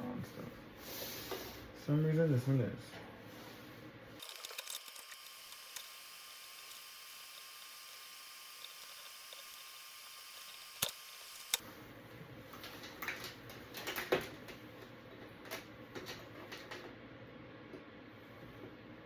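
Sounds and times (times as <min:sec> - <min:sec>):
sharp clicks: 0:04.2 - 0:11.6.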